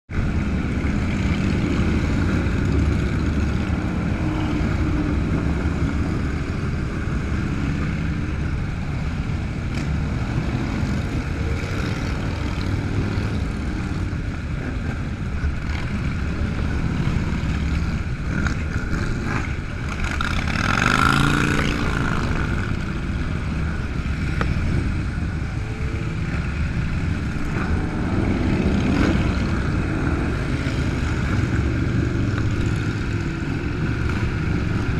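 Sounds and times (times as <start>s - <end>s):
motorcycle engines rumbling: 0.1s - 34.9s
motorcycle engine revving: 9.5s - 34.9s.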